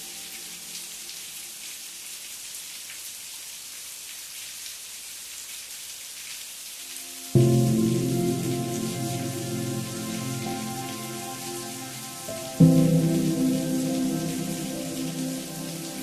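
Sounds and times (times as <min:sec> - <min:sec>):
steady rain falling: 0:00.0 - 0:16.0
held musical chord: 0:07.4 - 0:16.0.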